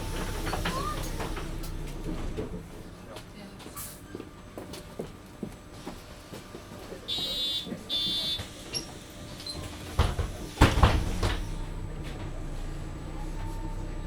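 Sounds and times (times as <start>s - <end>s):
bus doors closing with thumps: 0.0s - 2.9s, 7.1s - 14.0s
bus door warning beeps: 7.1s - 9.7s.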